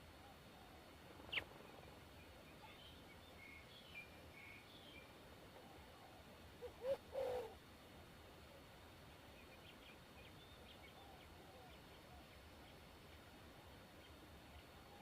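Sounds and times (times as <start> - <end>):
small birds chirping: 0.5 - 7.6, 8.6 - 15.0
dove cooing: 5.6 - 7.6.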